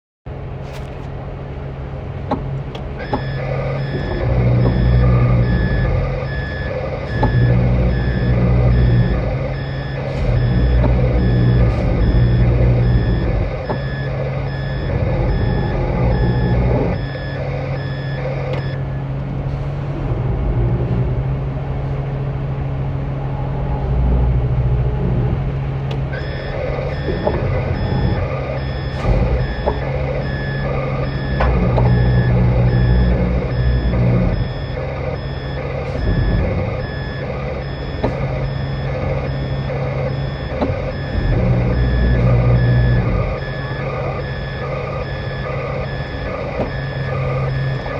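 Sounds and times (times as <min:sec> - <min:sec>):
diesel engine rumble: 0:00.3 - 0:47.9
reversing alarm beeping: 0:02.8 - 0:20.0, 0:26.0 - 0:47.9.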